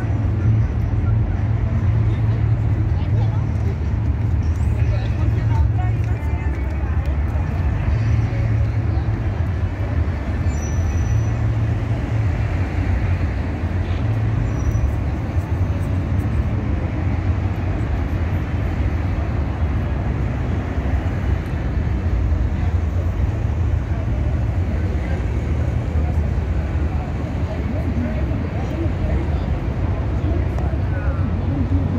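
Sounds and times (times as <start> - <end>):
road traffic rumbling past: 0.0 - 31.9.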